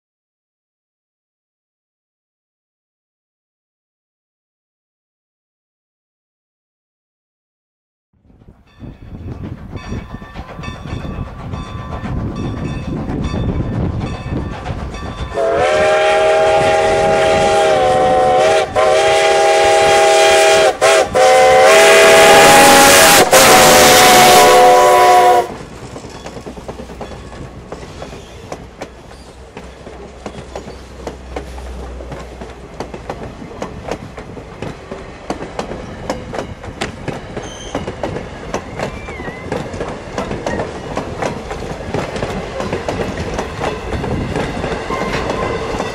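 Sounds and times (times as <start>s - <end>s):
train rolling rumble: 8.2s - 45.9s
wheels clicking over rail joints: 8.4s - 15.4s, 25.5s - 45.9s
steam locomotive chime whistle: 14.3s - 25.6s, 37.4s - 39.6s, 43.6s - 45.9s.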